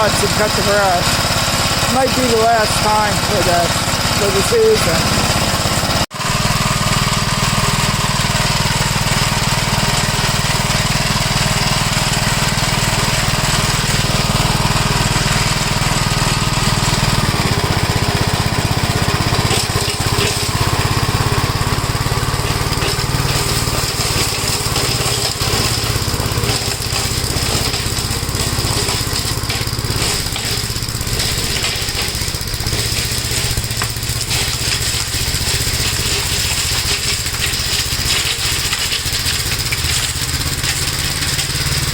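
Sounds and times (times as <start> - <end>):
mower rattling chopping leaves: 0.0 - 41.9
tractor engine running: 0.0 - 41.9.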